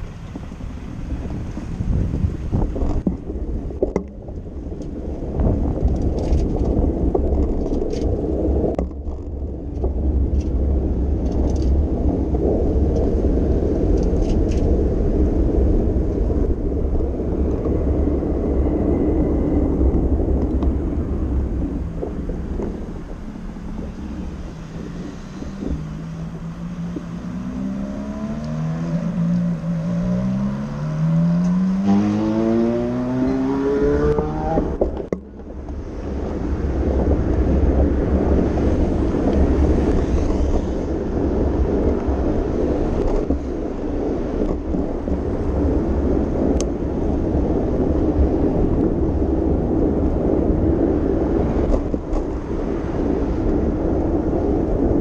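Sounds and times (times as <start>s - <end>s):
wind and road noise: 0.0s - 55.0s
engine accelerating through gears: 24.8s - 35.0s.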